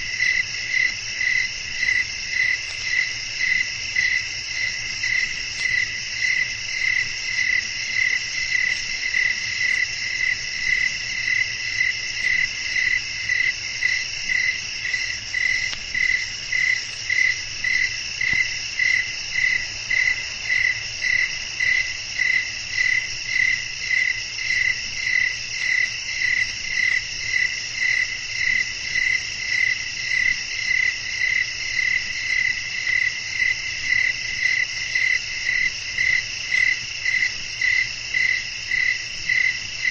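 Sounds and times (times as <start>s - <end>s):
crickets trilling: 0.0s - 39.9s
loud regular cricket chirp: 0.0s - 39.9s.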